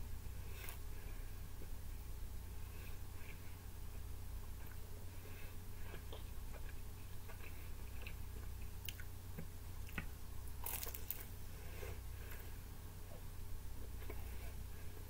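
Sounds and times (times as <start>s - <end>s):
person chewing pizza: 4.5s - 13.2s.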